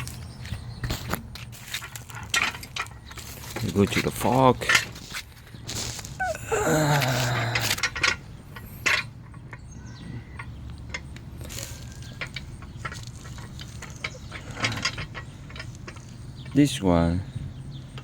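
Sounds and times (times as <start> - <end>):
metal clicks and knocks: 0.0 - 5.2, 7.4 - 16.8.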